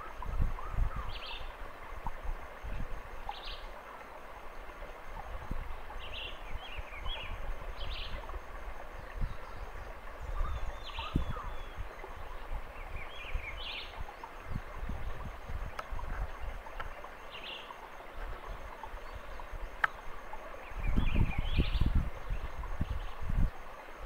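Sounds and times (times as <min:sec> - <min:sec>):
high-pitched bird calls: 0:10.3 - 0:11.8.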